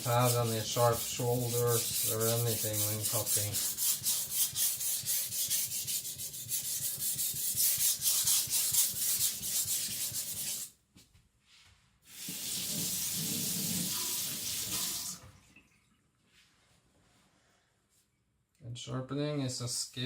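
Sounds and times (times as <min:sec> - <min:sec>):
blade rubbing on whetstone: 0:00.0 - 0:10.7.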